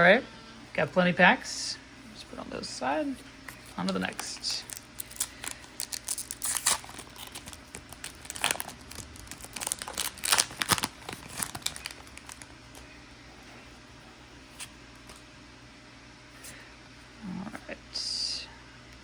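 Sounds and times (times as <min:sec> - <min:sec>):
foil wrapper crinkling and tearing: 0:03.8 - 0:12.9.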